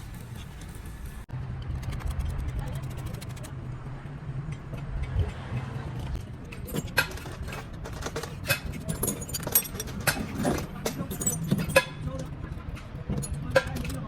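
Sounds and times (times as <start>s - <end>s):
metallic clinks and taps: 6.0s - 14.0s.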